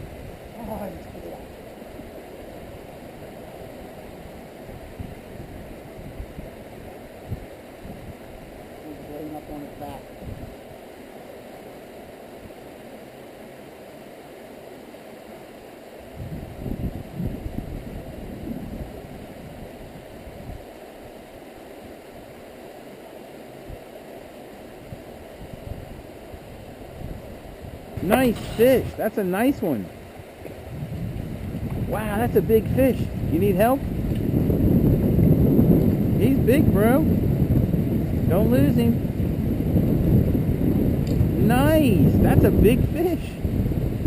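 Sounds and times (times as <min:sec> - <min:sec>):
stream water running: 0:00.0 - 0:44.0
low rumbling bumps: 0:30.1 - 0:42.7.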